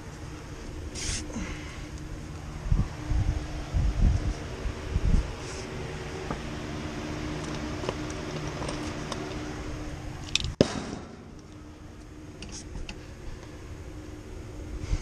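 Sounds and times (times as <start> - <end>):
machine hum with held tones: 0.0 - 15.0
sharp knock: 10.6 - 11.2.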